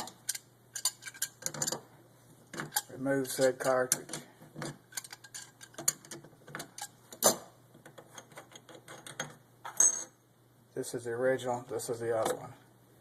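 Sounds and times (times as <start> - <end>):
small metal clicks and ticks: 0.0 - 1.8, 2.6 - 7.0.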